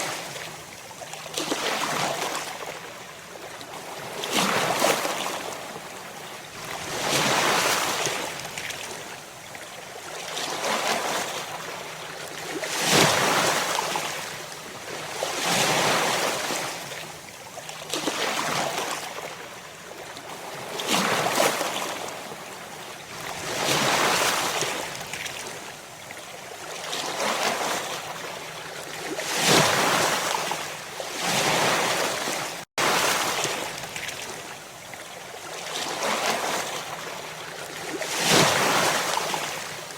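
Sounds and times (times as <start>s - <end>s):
ocean waves breaking: 29.0s - 34.3s.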